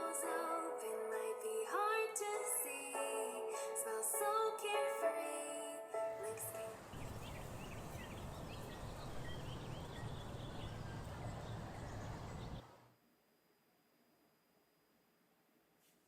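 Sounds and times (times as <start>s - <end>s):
birds chirping: 6.5s - 12.7s.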